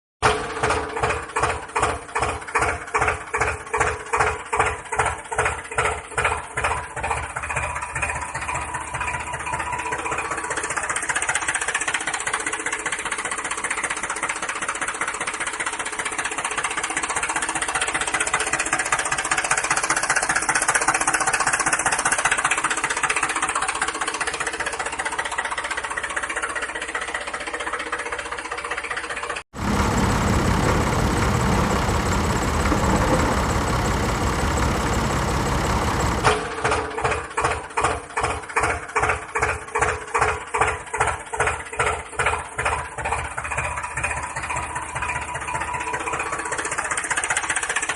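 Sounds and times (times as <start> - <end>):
engine chugging: 0.2 - 47.9
louder engine running: 29.5 - 37.2.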